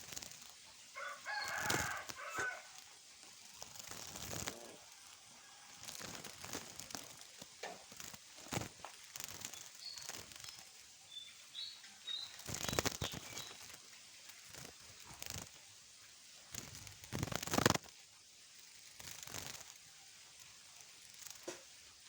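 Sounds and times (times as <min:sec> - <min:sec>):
rustling fluttering noise: 0:00.0 - 0:22.0
high bird chirps: 0:09.3 - 0:13.8.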